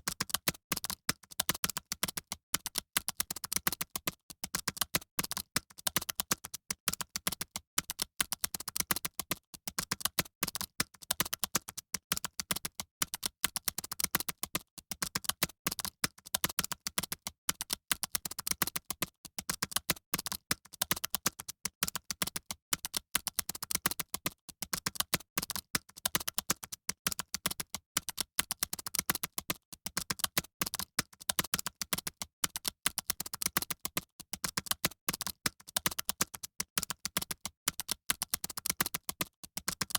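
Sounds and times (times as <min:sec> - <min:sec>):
fast typing on keyboards: 0:00.0 - 0:39.9.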